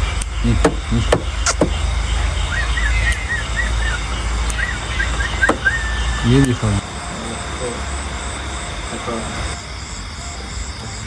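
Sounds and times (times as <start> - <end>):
bird chirping: 0.0 - 11.0
sharp clicks: 0.1 - 1.8, 4.4 - 4.8, 6.4 - 6.8.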